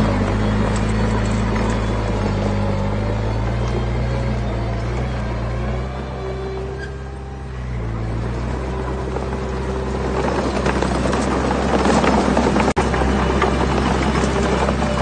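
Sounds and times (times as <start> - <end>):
diesel engine running: 0.0 - 15.0
dense clattering: 8.2 - 15.0.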